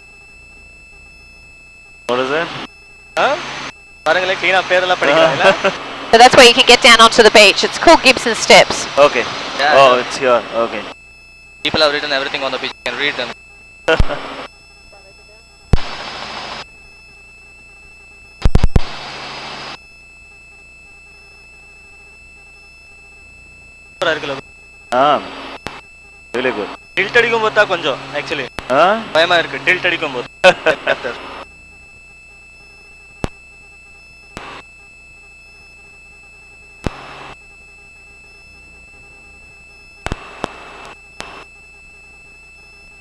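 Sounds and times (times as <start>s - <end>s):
high-pitched whine: 0.0s - 43.0s
intercom electronic hum: 0.0s - 43.0s
microphone hiss: 15.8s - 16.6s, 26.4s - 31.4s, 40.0s - 41.4s
loud clicks: 40.0s - 41.4s.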